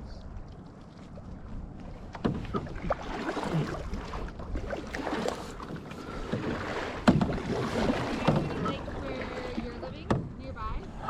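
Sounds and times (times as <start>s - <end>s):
paddles splashing in water: 0.0s - 11.0s
sharp knocks: 7.0s - 7.4s.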